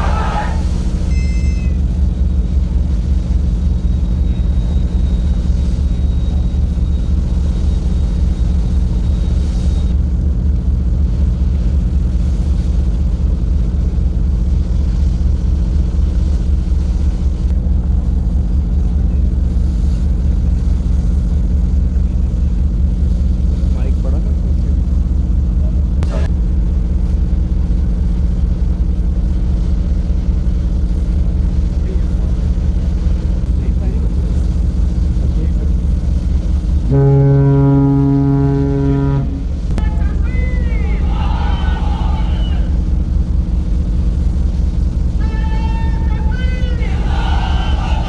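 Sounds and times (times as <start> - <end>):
low engine drone: 0.0 - 48.0
faint high whine: 36.9 - 40.2.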